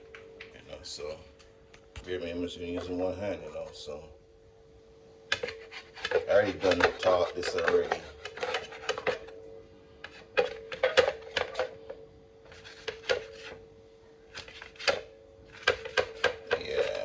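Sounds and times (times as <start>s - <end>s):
knife chopping on cutting board: 15.6s - 16.6s.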